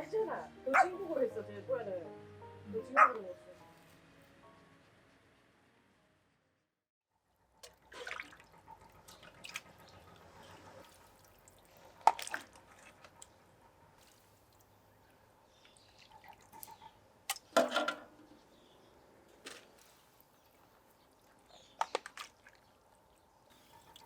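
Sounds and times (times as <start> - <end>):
small liquid sounds: 7.6 - 9.6, 10.8 - 13.2, 15.5 - 17.6, 19.7 - 24.0
tableware clinks and knocks: 17.6 - 18.1.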